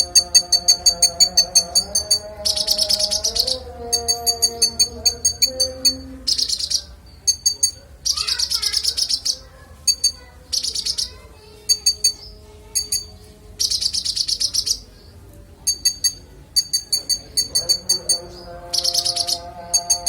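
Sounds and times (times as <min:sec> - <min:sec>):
songbird trilling: 0:00.0 - 0:15.0, 0:15.7 - 0:20.0.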